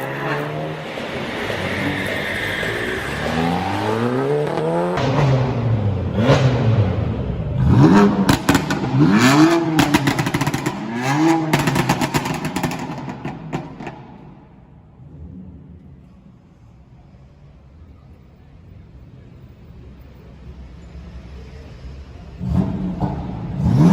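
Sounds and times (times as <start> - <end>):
car engine revving: 0.0 - 16.0, 22.3 - 23.9
sharp exhaust cracks: 8.0 - 14.4.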